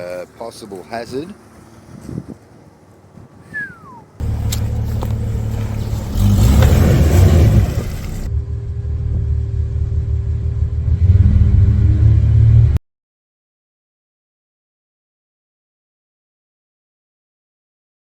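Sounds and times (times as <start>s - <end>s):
off-road vehicle engine revving: 4.2s - 12.8s.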